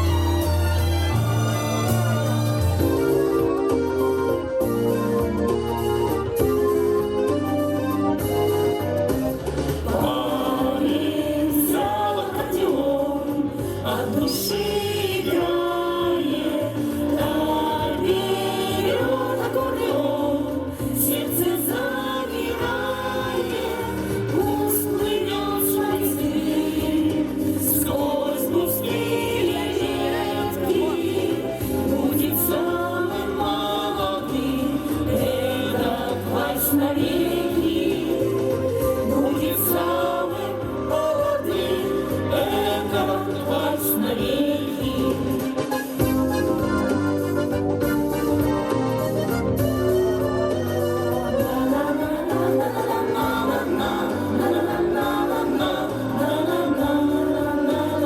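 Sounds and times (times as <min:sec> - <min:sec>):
instrumental accompaniment: 0:00.0 - 0:58.0
group of voices singing: 0:09.4 - 0:58.0.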